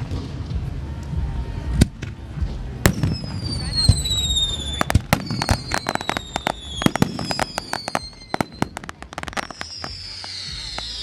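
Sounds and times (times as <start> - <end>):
fireworks cracks and bangs: 1.8 - 11.0
falling fireworks whistles: 2.9 - 11.0
shrill rising whistles: 3.4 - 11.0.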